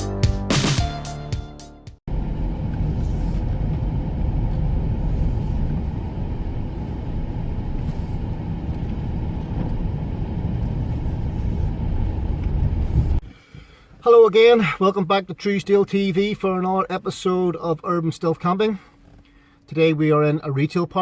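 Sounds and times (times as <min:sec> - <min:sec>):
motor vehicle low rumble: 0:02.1 - 0:13.8.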